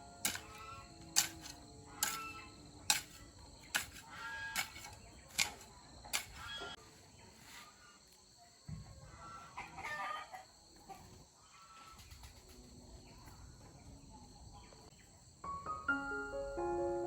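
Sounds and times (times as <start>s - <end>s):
chickens calling: 0.0s - 6.8s, 9.0s - 13.4s.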